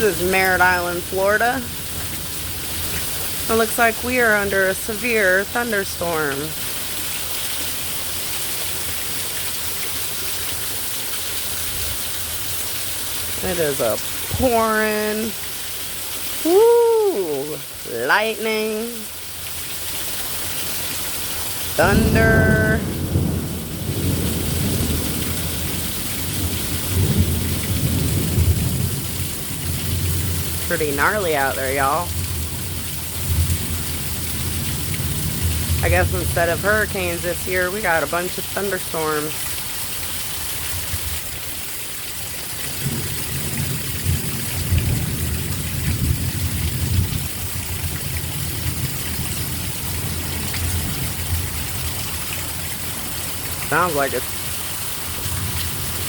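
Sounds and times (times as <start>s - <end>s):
heavy rain pouring: 0.0s - 56.0s
thunder rumbling: 21.7s - 38.4s, 42.7s - 54.5s.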